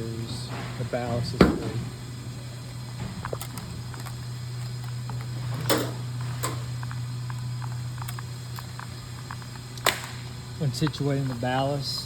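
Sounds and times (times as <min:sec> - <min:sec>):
steady low hum: 0:00.0 - 0:12.0
knocks: 0:01.4 - 0:02.0.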